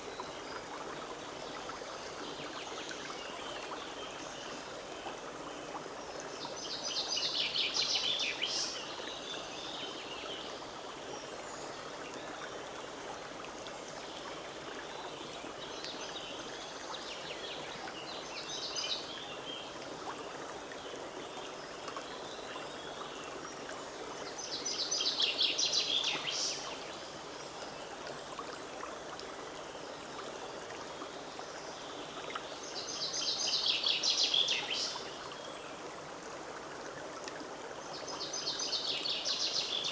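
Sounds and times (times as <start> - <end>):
stream running over stones: 0.0 - 39.9
songbird singing: 24.3 - 27.1, 32.1 - 35.5.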